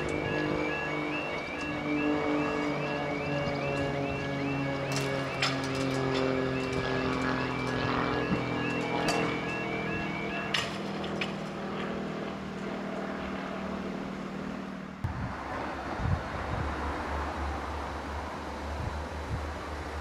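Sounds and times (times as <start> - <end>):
vehicle engines humming: 0.0 - 20.0
wind noise: 15.0 - 20.0.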